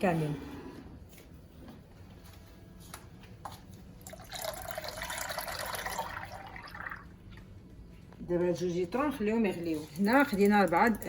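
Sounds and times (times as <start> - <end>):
milk pouring into a pot: 4.0 - 7.2.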